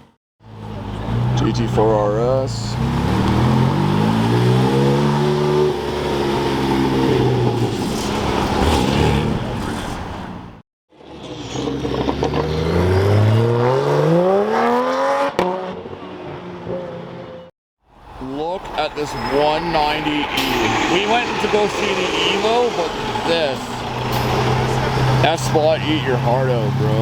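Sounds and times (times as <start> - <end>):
sports car accelerating hard: 0.5 - 10.4, 11.0 - 17.5
sports car engine revving: 0.5 - 17.5, 18.8 - 27.0.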